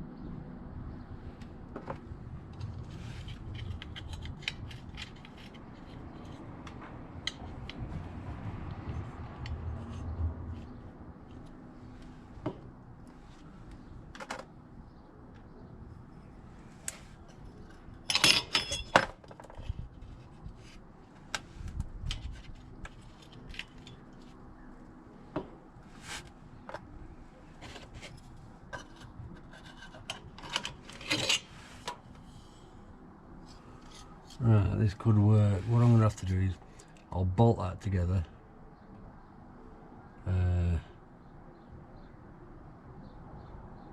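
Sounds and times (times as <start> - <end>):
metal brackets clinking: 17.2 - 19.2.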